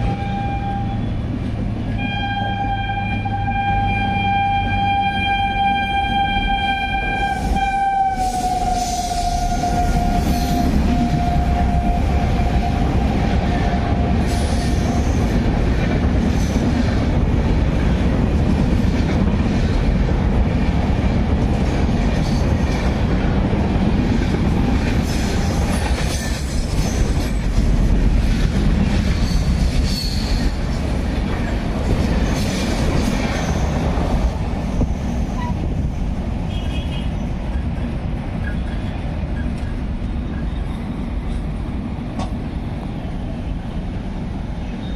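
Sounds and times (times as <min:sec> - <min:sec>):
train horn: 0:00.0 - 0:01.2, 0:01.8 - 0:14.9
train wheels rumbling on rail: 0:00.0 - 0:44.9.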